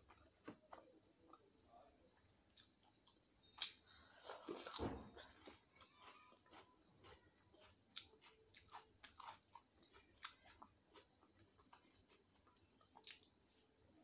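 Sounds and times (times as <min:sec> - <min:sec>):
chewing with wet mouth clicks: 0:02.5 - 0:03.8, 0:05.2 - 0:13.3.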